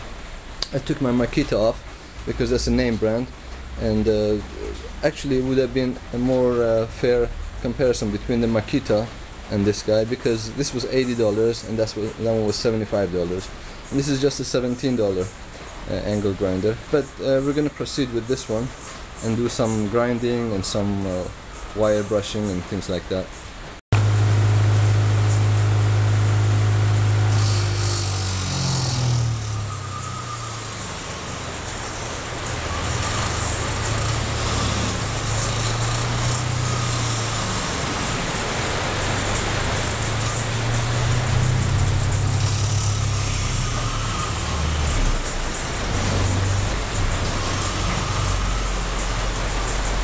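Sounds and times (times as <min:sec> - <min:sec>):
bench grinder motor humming: 0:24.0 - 0:49.9
wire wheel brushing steel: 0:24.0 - 0:50.0.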